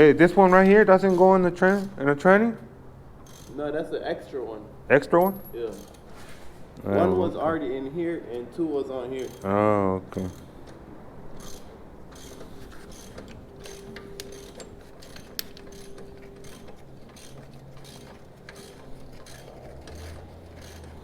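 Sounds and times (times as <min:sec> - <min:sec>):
ratchet wrench clicking: 0:00.2 - 0:02.1, 0:03.2 - 0:03.7, 0:05.2 - 0:06.1, 0:09.1 - 0:09.6, 0:10.2 - 0:21.0
metal tools clinking: 0:11.4 - 0:21.0.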